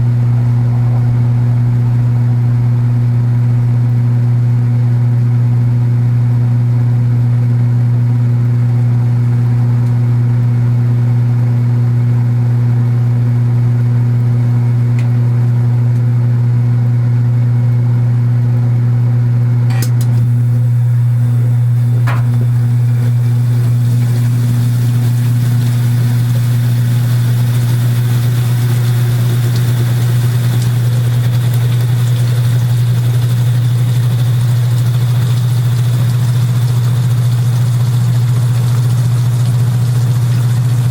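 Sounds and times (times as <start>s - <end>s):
washing machine motor hum: 0.0s - 40.9s
cabinet buzz: 19.7s - 27.7s.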